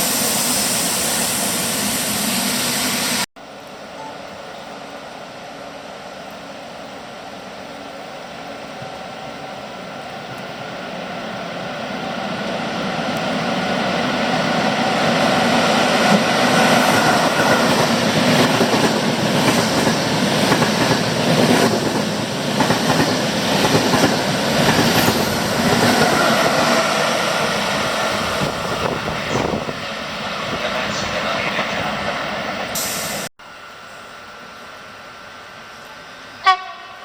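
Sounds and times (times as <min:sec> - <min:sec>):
train wheels rumbling on rails: 0:12.2 - 0:33.3.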